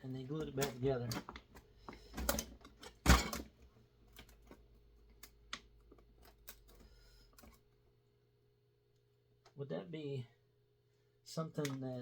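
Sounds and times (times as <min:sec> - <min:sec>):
clicks and knocks of handled parts: 0:00.3 - 0:07.7, 0:11.6 - 0:12.0.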